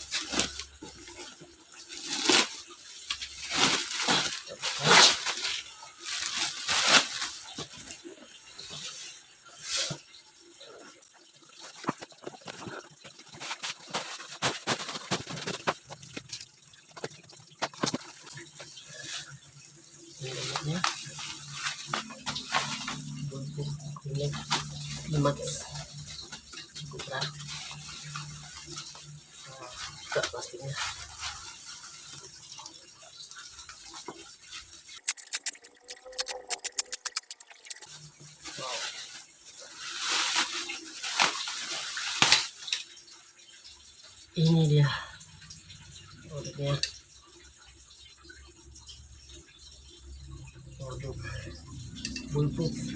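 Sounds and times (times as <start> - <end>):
packaging rustling and crackling: 0.0 - 8.9, 11.5 - 19.4
plastic wrapping crinkling: 0.0 - 10.1, 11.5 - 43.1.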